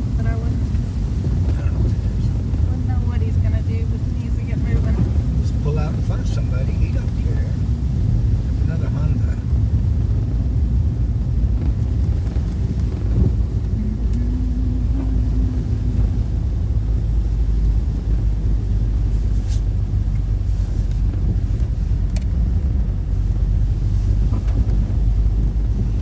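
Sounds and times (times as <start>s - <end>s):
road and engine rumble in car: 0.0s - 26.0s
faint hum: 10.2s - 21.2s.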